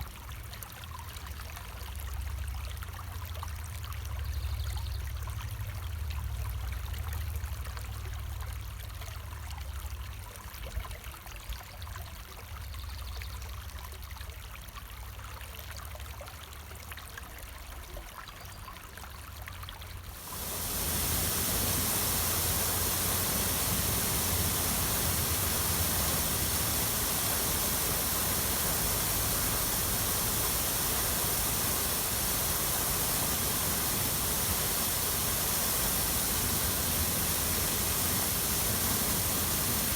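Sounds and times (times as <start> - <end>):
running water: 20.1 - 39.9.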